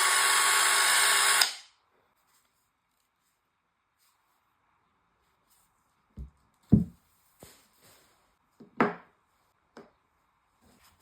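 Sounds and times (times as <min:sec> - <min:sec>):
objects knocking on hard surface: 0:06.2 - 0:07.0.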